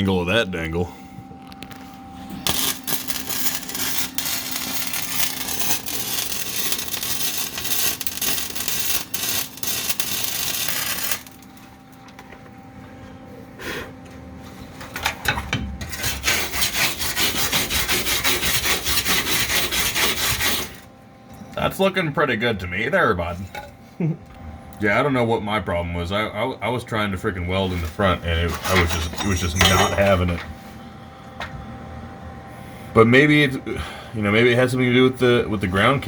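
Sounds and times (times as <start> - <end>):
welder arc crackling sizzle: 0.0 - 12.4, 15.8 - 20.9
faint steady hum: 0.0 - 36.0.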